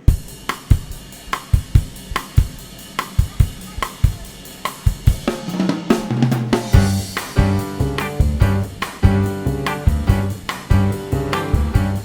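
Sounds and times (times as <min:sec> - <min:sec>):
drum kit playing steady beat: 0:00.0 - 0:12.0
bass line: 0:06.8 - 0:12.0
electric guitar: 0:06.8 - 0:12.0.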